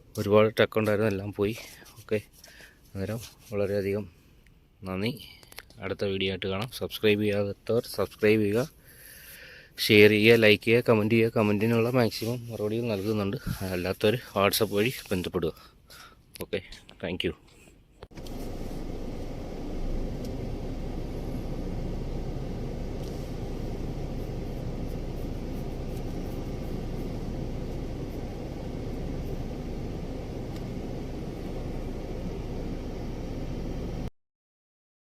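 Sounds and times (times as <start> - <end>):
vehicle engine rumble: 18.1 - 34.1.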